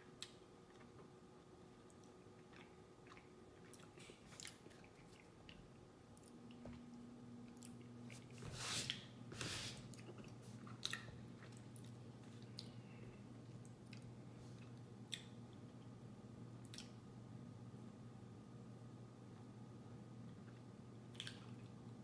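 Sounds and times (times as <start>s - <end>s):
close chewing mouth sounds: 1.8s - 6.8s.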